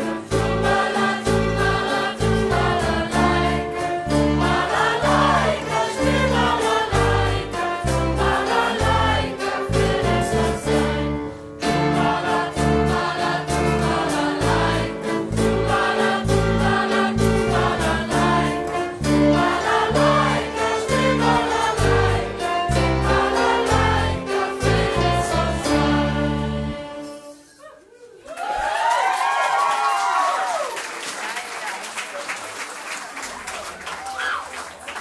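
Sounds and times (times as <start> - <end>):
choir singing with live band: 0.0 - 27.5.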